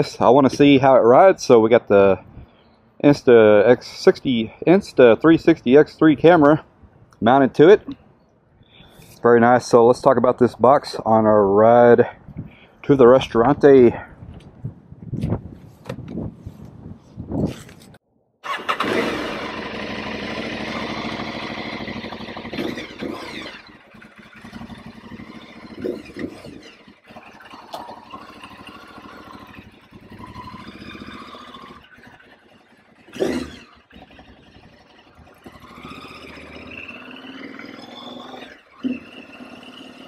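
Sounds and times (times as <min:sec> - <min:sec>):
motorcycle engine starting and idling: 0:18.4 - 0:40.0.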